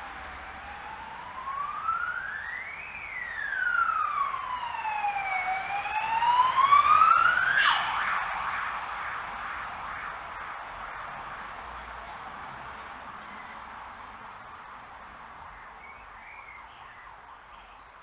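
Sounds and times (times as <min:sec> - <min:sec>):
emergency siren wailing: 0:00.0 - 0:10.6.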